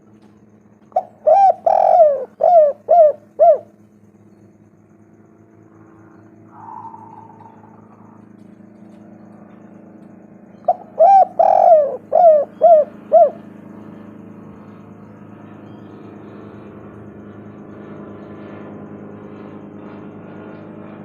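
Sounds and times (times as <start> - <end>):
low background hum: 0.0 - 21.0
dove cooing: 0.8 - 3.8, 6.4 - 8.4, 10.5 - 14.0.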